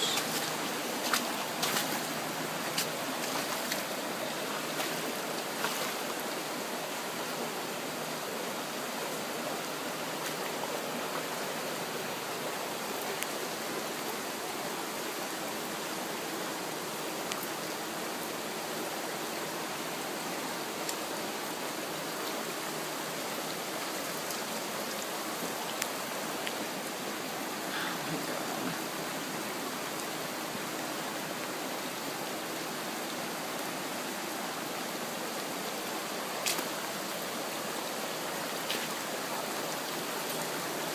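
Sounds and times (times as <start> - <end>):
floodwater rushing: 0.0 - 40.9.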